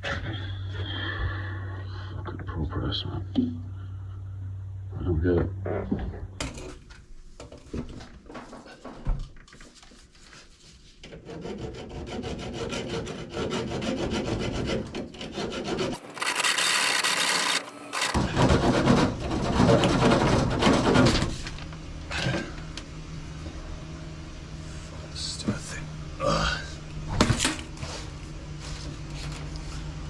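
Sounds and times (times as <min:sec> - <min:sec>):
saw rasping through pipe: 0:11.1 - 0:21.1.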